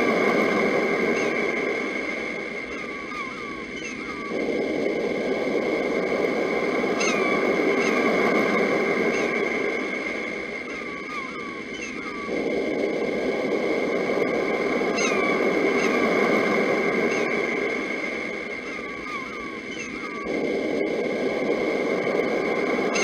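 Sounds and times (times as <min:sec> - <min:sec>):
birds calling with falling chirps: 0:00.0 - 0:04.6, 0:06.8 - 0:12.5, 0:14.8 - 0:20.5
sea waves washing: 0:00.0 - 0:23.0.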